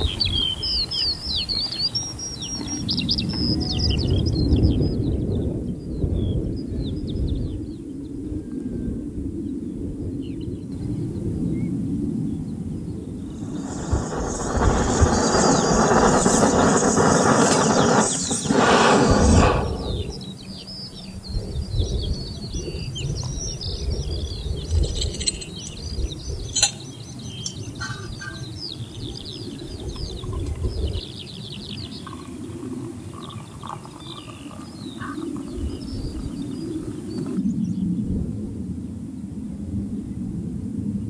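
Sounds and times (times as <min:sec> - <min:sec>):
small birds singing: 0:00.0 - 0:38.2
low uneven rumble: 0:13.2 - 0:20.4
loud rushing noise: 0:13.3 - 0:20.3.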